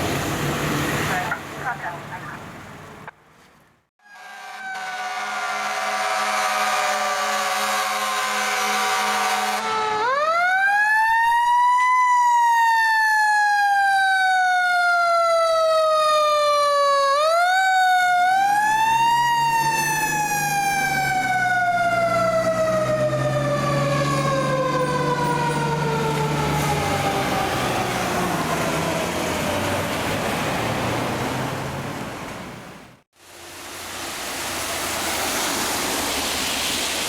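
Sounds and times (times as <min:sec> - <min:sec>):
truck engine low hum: 0:00.0 - 0:03.8, 0:17.2 - 0:36.8
fire truck mechanical siren wailing: 0:04.0 - 0:31.2.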